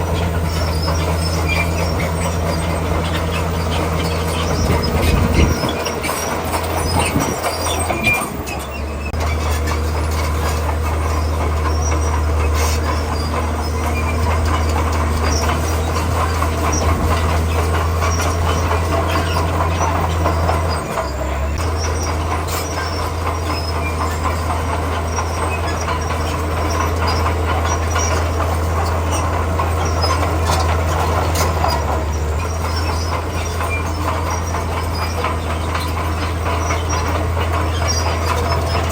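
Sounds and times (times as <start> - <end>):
diesel engine under load: 0.0 - 38.9
steel tracks clanking: 0.0 - 38.9.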